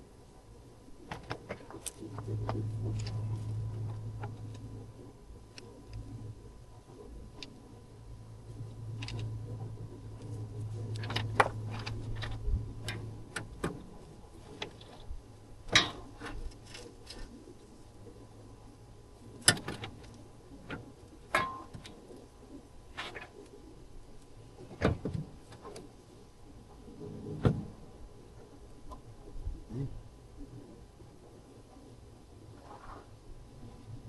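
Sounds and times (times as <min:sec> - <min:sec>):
faint low hum: 0:00.0 - 0:34.0.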